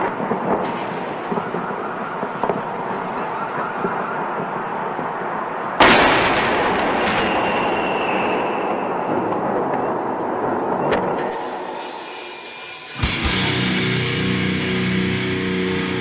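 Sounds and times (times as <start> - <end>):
loud boom: 5.8 - 9.3
steady hiss: 11.3 - 16.0.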